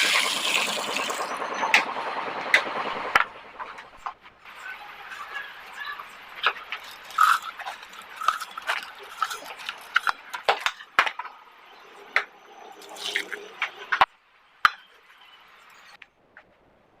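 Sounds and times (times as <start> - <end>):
water pouring into vessel: 0.0 - 1.3, 12.7 - 13.6.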